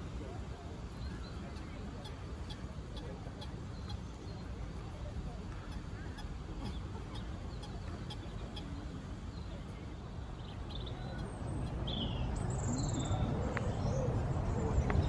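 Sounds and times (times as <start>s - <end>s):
low outdoor rumble: 0.0s - 15.0s
small birds chirping: 0.0s - 15.0s.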